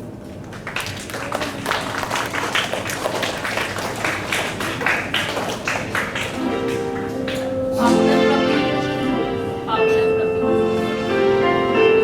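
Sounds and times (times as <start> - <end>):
audience applause: 0.4 - 7.6.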